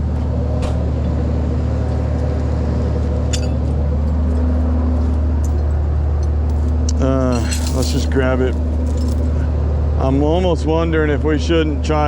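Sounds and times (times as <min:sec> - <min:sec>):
truck engine idling: 0:00.0 - 0:12.0
metallic clink: 0:03.3 - 0:03.6, 0:06.5 - 0:08.2.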